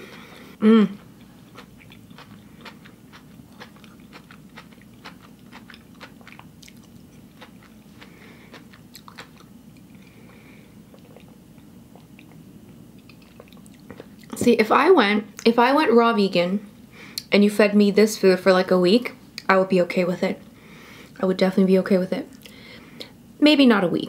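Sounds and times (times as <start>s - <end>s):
person humming mm: 0.6s - 1.1s
wet mouth clicks chewing: 1.5s - 10.1s.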